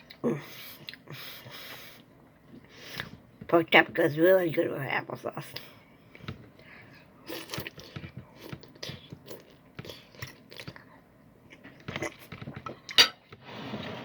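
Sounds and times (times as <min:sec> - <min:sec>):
person chewing food: 0:00.0 - 0:03.2, 0:05.6 - 0:13.0.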